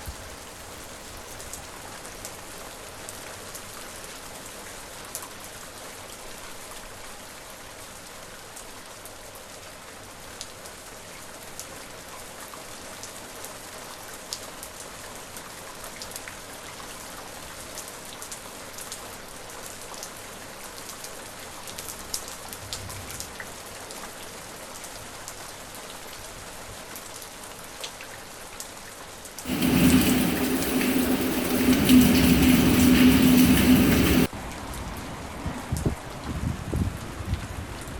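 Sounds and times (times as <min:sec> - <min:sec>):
raindrops ticking: 0:00.0 - 0:01.7, 0:29.5 - 0:34.3
steady rain: 0:00.0 - 0:37.9
loud noise with low hum: 0:29.5 - 0:34.3.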